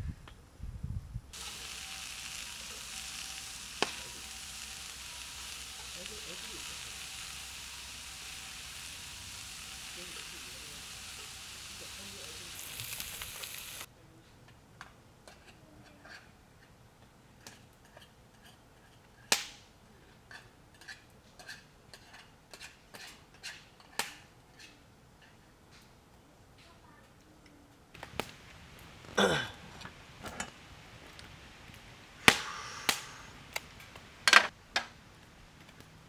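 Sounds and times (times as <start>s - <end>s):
food sizzling in a pan: 1.3s - 13.9s, 28.0s - 34.5s.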